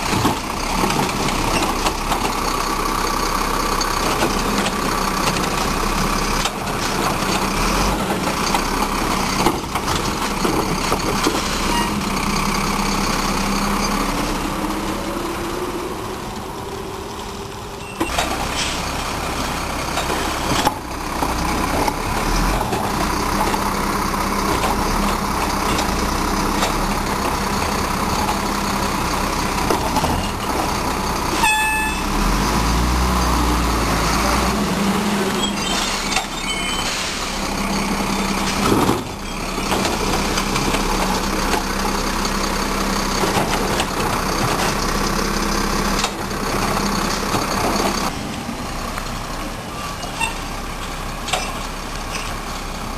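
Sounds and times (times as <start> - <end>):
garbage truck engine drone: 0.0 - 52.9
high horn-like tone: 31.4 - 32.2.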